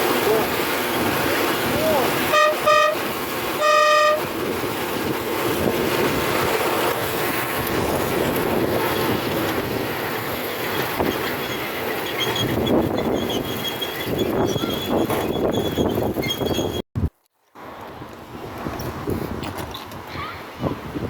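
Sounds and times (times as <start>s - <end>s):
train running along track: 0.0s - 16.8s
train whistle toot: 2.3s - 3.0s, 3.6s - 4.3s.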